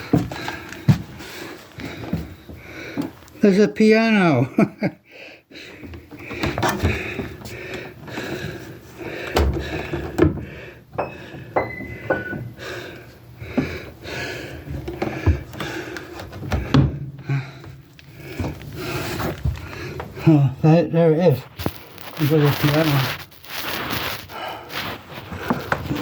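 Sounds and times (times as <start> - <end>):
knocks and thuds: 9.3 - 12.6, 14.8 - 15.8, 16.4 - 17.3
rustling: 21.3 - 26.0.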